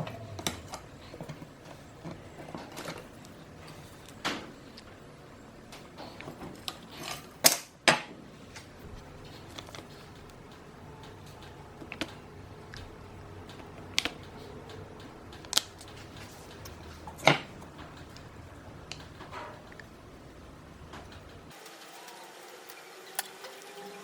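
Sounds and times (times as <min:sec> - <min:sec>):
faint steady hum: 0:00.0 - 0:24.0
hard objects clicking and knocking: 0:05.7 - 0:21.6.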